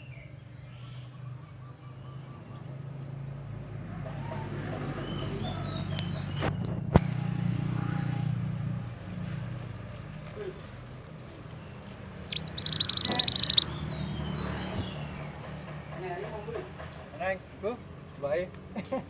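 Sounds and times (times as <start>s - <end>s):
vehicle engine hum: 0.0s - 19.0s
faint bird chirps: 12.2s - 14.9s.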